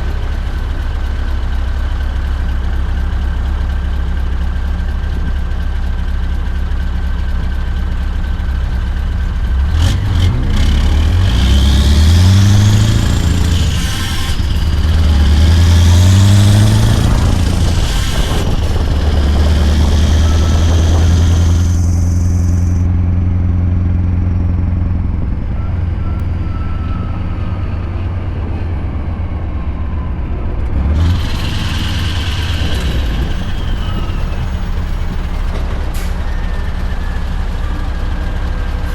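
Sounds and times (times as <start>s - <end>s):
truck diesel engine under load: 0.0s - 38.9s
high whine: 11.1s - 28.2s, 29.5s - 35.5s.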